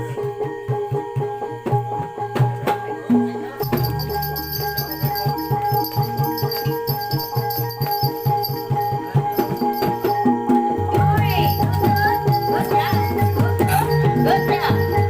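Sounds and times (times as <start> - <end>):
drums beating quick rhythm: 3.6 - 15.0
rattling percussion: 3.6 - 15.0.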